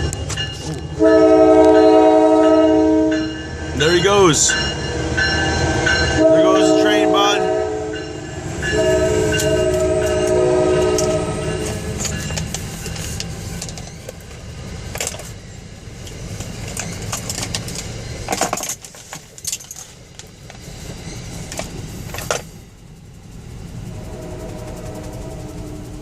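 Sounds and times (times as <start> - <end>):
train wheels rumbling on rails: 0.0 - 26.0
metallic clanks and rattles: 9.3 - 15.4, 16.0 - 20.6, 21.4 - 22.6.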